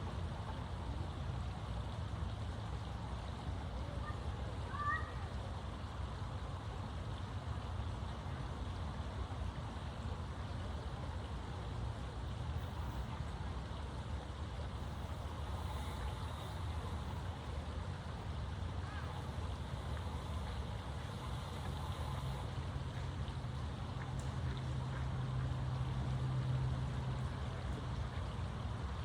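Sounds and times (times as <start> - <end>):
steady hiss: 12.4 - 24.0.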